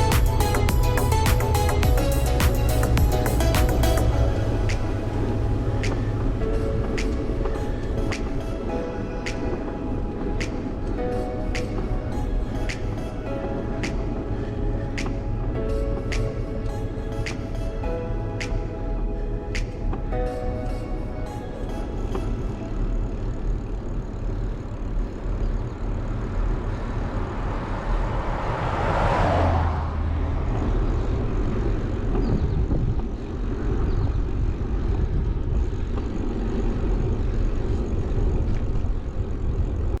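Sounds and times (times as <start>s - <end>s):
steady low rumble: 0.0s - 40.0s
wind rushing over microphone: 26.4s - 40.0s.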